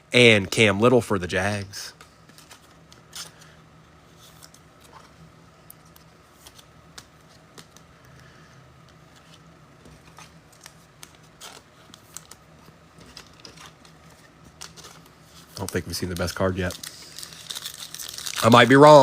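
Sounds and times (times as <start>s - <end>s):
cards clicking and rustling: 1.9s - 3.5s, 5.7s - 19.0s.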